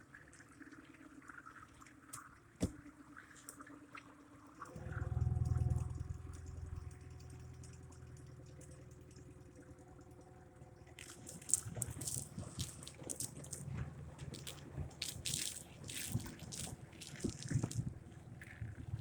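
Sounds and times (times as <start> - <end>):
ice crackling against hull: 10.9 - 19.0.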